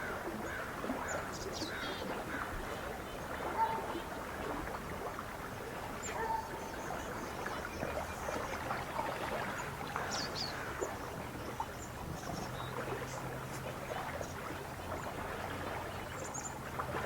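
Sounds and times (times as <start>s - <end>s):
water lapping: 0.0s - 17.0s.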